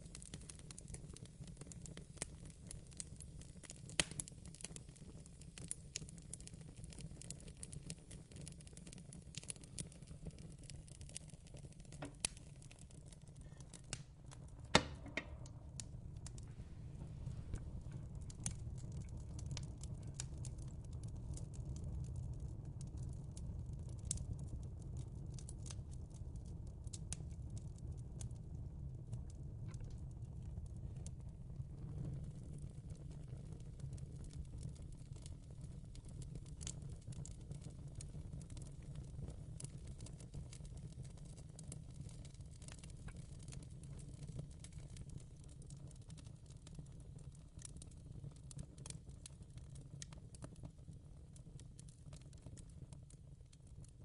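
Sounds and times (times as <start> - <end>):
wood fire crackling: 0.0 - 54.0
low steady rumble: 12.0 - 22.8.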